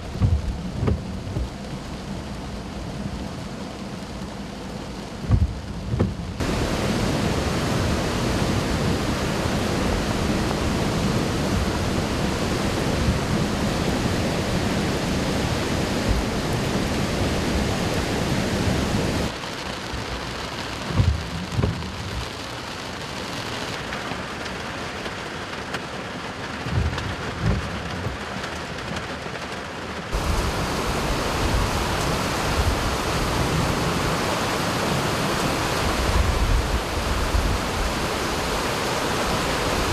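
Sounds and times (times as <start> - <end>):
heavy rain pouring: 0.0 - 39.9
short low thumps: 0.1 - 1.6, 5.2 - 6.4.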